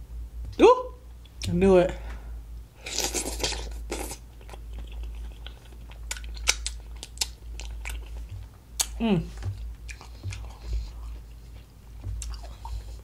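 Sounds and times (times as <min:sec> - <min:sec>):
wet crunching chewing: 0:02.8 - 0:13.0
mouth clicks and smacks: 0:02.9 - 0:11.1, 0:12.0 - 0:13.0.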